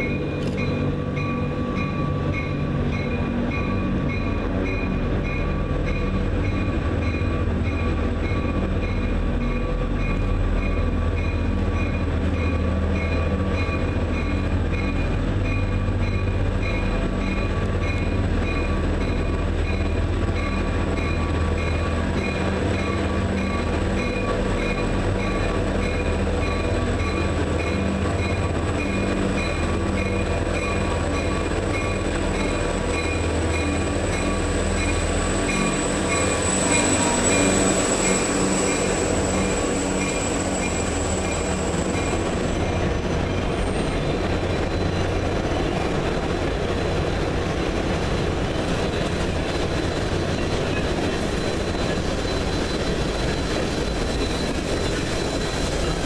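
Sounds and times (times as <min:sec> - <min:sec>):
locomotive bell ringing: 0:00.0 - 0:56.0
locomotive rumble: 0:00.0 - 0:56.0
high wheel squeal: 0:20.4 - 0:46.0, 0:48.4 - 0:56.0.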